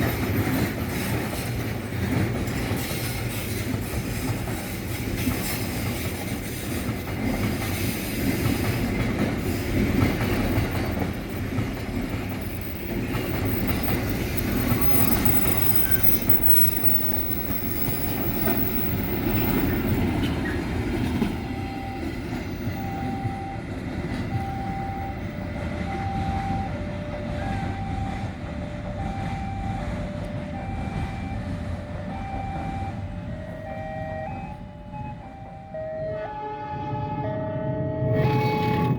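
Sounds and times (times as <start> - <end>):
train wheels rumbling: 0.0 - 35.8
wheel squeal: 12.0 - 20.8, 38.1 - 38.9
two-tone electronic alarm: 13.4 - 20.1, 21.1 - 38.9.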